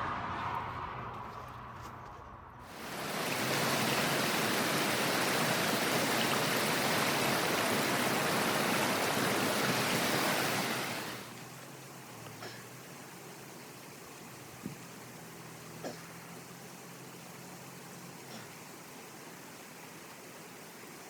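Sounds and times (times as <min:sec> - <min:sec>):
strong wind blowing: 0:00.0 - 0:11.3.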